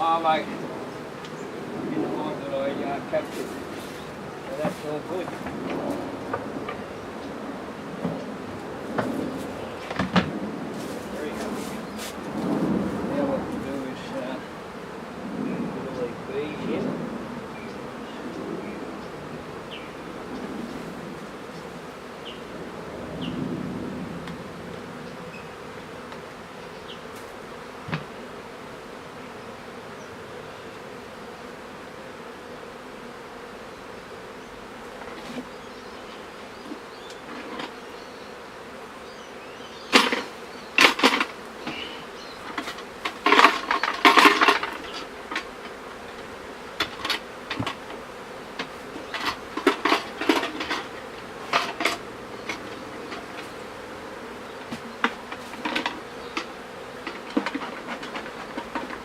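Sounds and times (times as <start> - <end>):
bees buzzing: 0.0 - 59.0
sharp clicks and knocks: 54.6 - 59.0.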